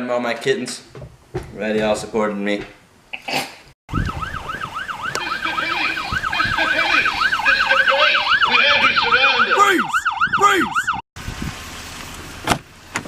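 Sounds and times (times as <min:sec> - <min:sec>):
lower siren wail: 0:03.9 - 0:11.0
siren in fast yelp: 0:03.9 - 0:11.0.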